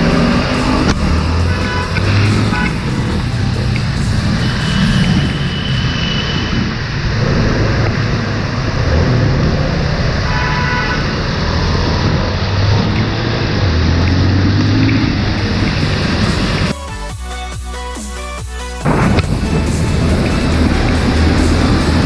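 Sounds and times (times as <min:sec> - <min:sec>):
motorcycle engine: 0:00.0 - 0:17.0, 0:18.8 - 0:22.0
road noise: 0:00.0 - 0:22.0
vehicle horn honk: 0:00.7 - 0:06.6, 0:10.3 - 0:11.2.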